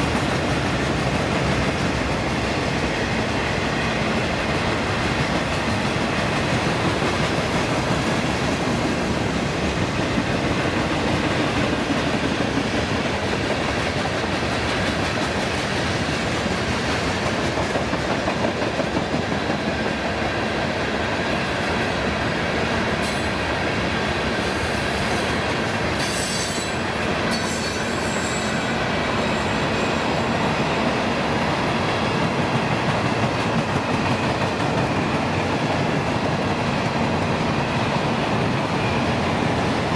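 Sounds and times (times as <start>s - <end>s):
train wheels on rails: 0.0s - 39.9s
high-pitched wheel squeals: 26.0s - 30.3s.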